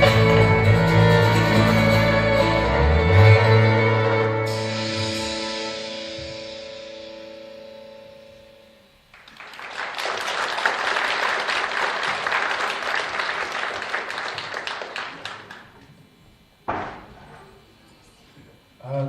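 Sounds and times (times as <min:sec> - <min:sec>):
final chord ringing out: 0:00.0 - 0:09.0
audience applauding: 0:09.1 - 0:16.0.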